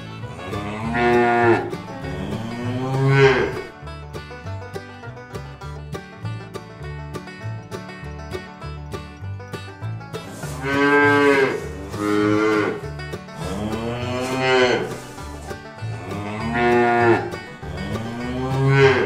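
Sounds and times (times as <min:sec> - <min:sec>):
cows mooing: 0:00.0 - 0:03.8, 0:10.2 - 0:19.0
banjo bluegrass music: 0:00.0 - 0:19.0.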